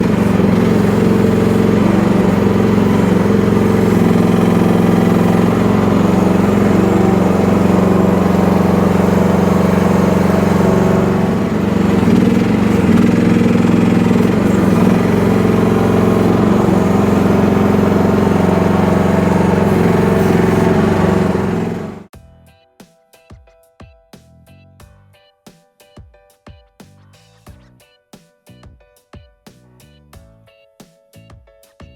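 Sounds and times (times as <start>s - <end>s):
mini excavator engine running: 0.0s - 22.1s.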